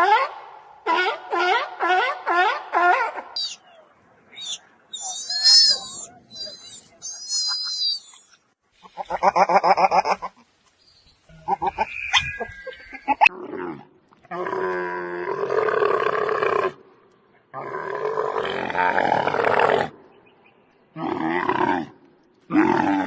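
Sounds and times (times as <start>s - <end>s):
animal calls: 0.9s - 10.2s.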